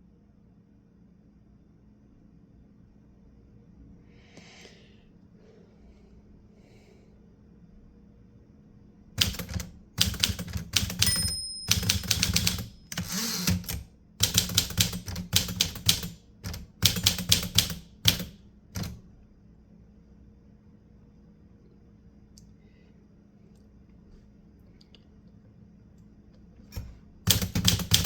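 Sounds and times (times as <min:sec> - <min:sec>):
typewriter bell ring: 0:09.2 - 0:18.9
typewriter keys clicking: 0:09.2 - 0:19.0, 0:26.7 - 0:28.0.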